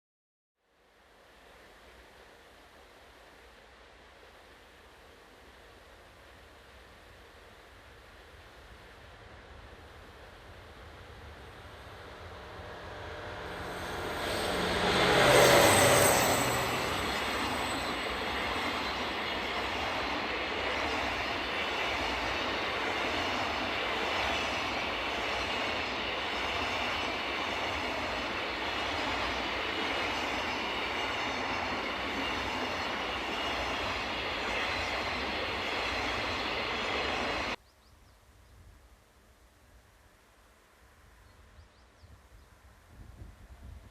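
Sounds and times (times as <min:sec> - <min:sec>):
freight wagons rumbling past: 0:11.1 - 0:37.5.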